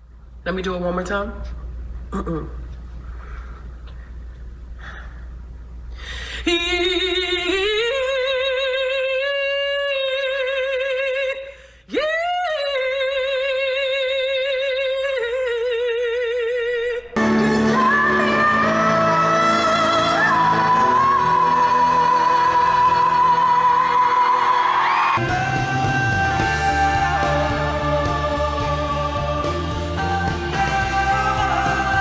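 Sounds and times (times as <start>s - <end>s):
person singing with vibrato: 6.1s - 32.0s
recorded song with backing music: 17.2s - 32.0s.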